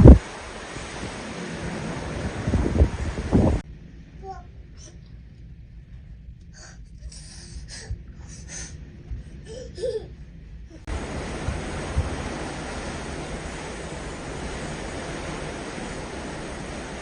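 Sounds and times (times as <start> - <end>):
sea rushing: 0.0 - 3.6, 10.7 - 17.0
low rumble: 0.0 - 17.0
wind: 0.0 - 17.0.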